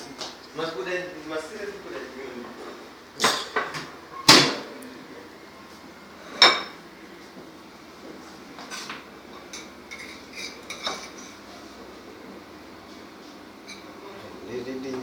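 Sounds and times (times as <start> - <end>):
dishes and cutlery clinking: 6.3 - 6.8, 8.6 - 11.4, 13.6 - 14.0.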